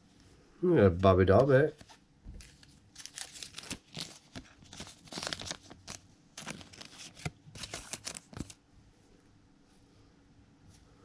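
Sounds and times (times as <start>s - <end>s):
cards rustling and scraping: 1.3s - 8.6s.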